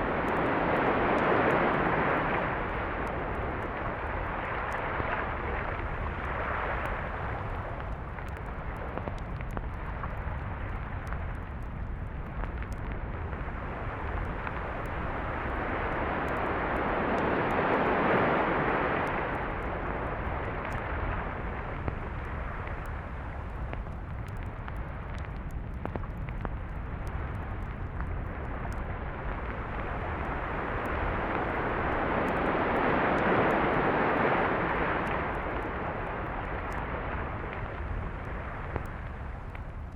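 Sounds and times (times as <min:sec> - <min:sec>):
sea waves washing onto beach: 0:00.0 - 0:07.8, 0:13.6 - 0:23.4, 0:29.5 - 0:39.5.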